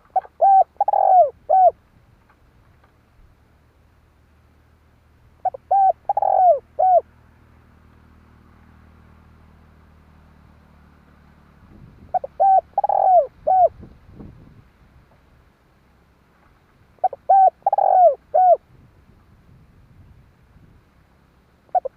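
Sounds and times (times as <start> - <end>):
dove cooing: 0.0 - 1.8, 5.4 - 7.1, 12.1 - 13.8, 17.0 - 18.6, 21.7 - 21.9.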